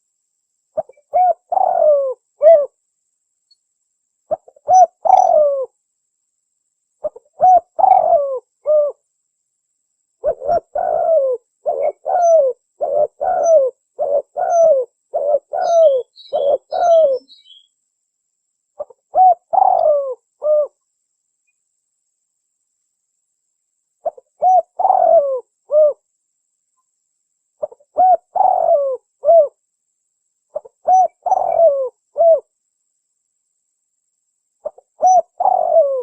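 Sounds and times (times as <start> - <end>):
faint high bird chirping: 0.7 - 2.8, 3.4 - 5.8, 7.0 - 9.0, 10.2 - 17.8, 18.7 - 21.7, 24.0 - 29.6, 30.4 - 32.5, 34.5 - 36.0
dove cooing: 0.8 - 2.8, 4.3 - 5.8, 7.0 - 9.0, 10.2 - 17.6, 18.8 - 20.8, 24.0 - 26.0, 27.6 - 29.6, 30.5 - 32.5, 34.6 - 36.0.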